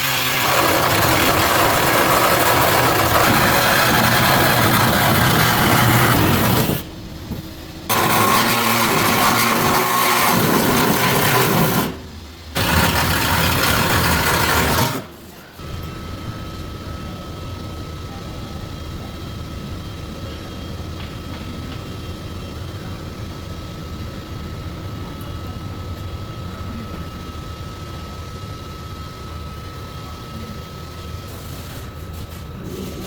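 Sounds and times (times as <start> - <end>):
power tool running: 0.0 - 16.3
steady hum with high tone: 0.0 - 33.0.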